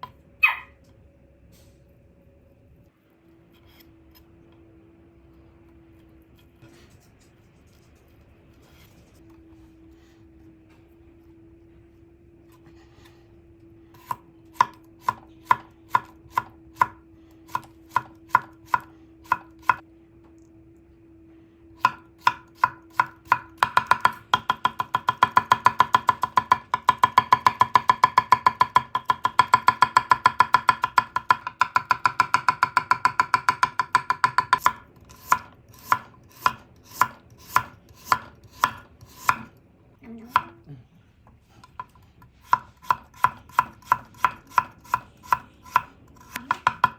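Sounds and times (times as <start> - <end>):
kitchen knife chopping on board: 14.0 - 19.8, 21.8 - 39.5, 41.7 - 46.9.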